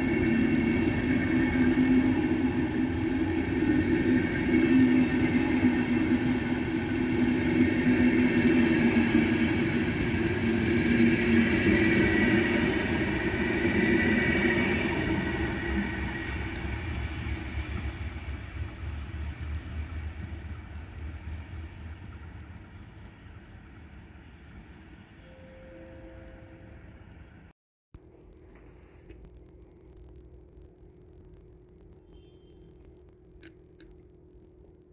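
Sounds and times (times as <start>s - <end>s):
train rumbling past: 0.0s - 27.5s
steady whine: 0.0s - 34.9s.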